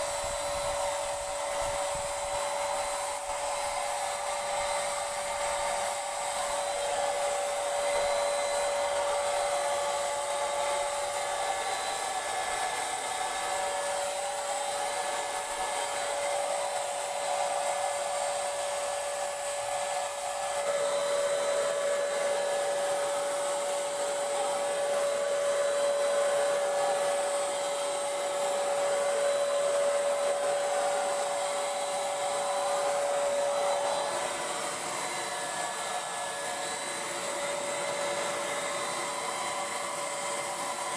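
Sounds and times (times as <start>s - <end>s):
electric paint sprayer whining: 0.0s - 40.9s.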